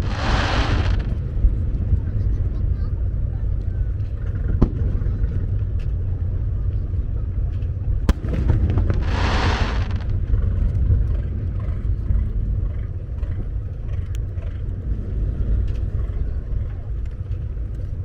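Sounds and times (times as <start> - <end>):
firework crackling hiss: 0.0 - 1.2, 8.1 - 10.2
firework sharp crack: 0.0 - 1.2, 8.1 - 10.2
fireworks low rumble: 0.0 - 18.0.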